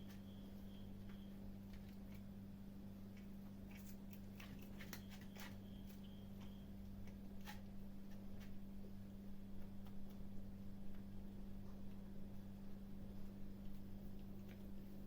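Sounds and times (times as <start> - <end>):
steady low hum: 0.0 - 15.0
kittens crunching food: 3.0 - 8.6.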